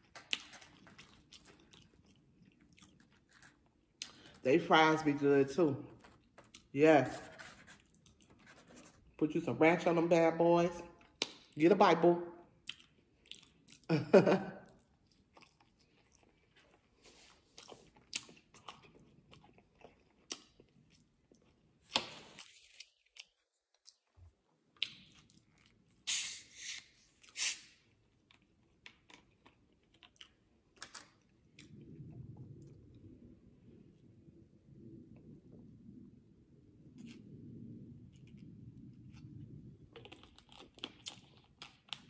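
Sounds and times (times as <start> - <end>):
wet chewing of fries: 0.0 - 4.4, 5.9 - 6.8, 12.5 - 32.4, 38.2 - 42.0.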